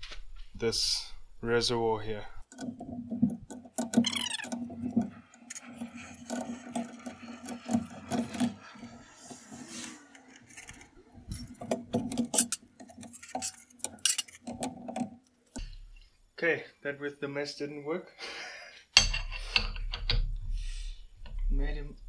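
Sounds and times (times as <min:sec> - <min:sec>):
hissing rush: 0:05.6 - 0:11.3
hand tools clicking on metal: 0:10.0 - 0:15.6.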